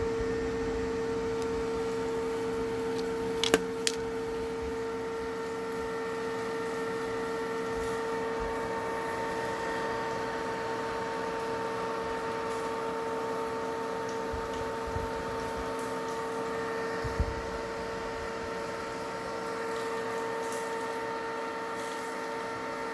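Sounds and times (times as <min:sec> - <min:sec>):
cooling fans whining and humming: 0:00.0 - 0:22.9.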